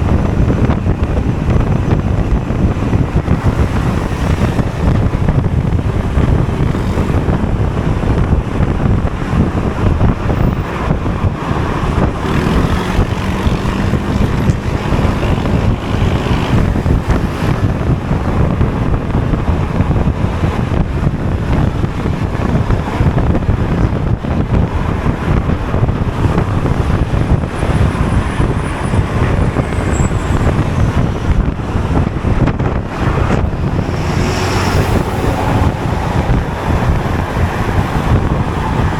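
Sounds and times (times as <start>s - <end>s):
scooter engine: 0.0s - 38.9s
wind rushing over microphone: 0.0s - 38.9s.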